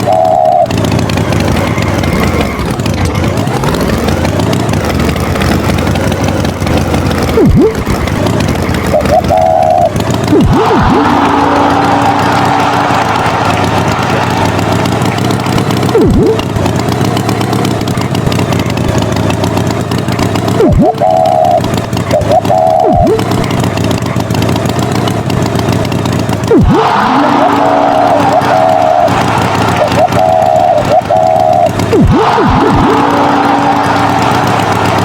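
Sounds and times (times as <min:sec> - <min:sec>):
cartoon tractor engine running: 0:00.0 - 0:35.0
boing-like swoops: 0:07.2 - 0:16.6, 0:20.5 - 0:23.5, 0:26.4 - 0:35.0
short high tones: 0:08.8 - 0:16.5, 0:20.6 - 0:23.4.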